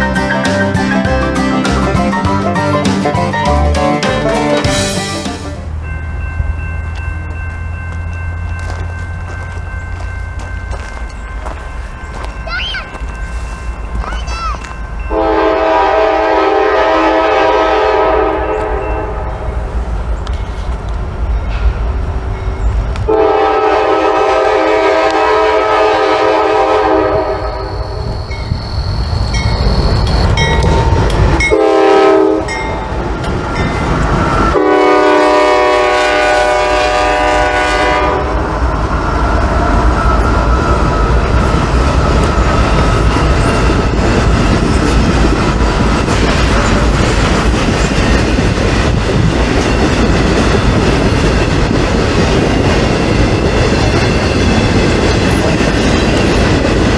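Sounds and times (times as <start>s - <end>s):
diesel locomotive horn blasts: 15.1s - 19.3s, 23.1s - 27.9s, 31.4s - 32.7s, 34.5s - 38.6s
train wheels clacking over rail joints: 39.9s - 56.9s.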